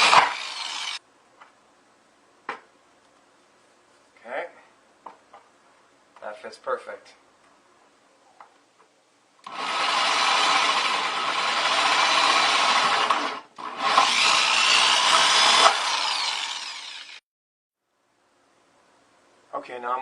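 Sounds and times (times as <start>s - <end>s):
power drill cutting plastic: 0.0s - 1.0s, 9.4s - 17.2s.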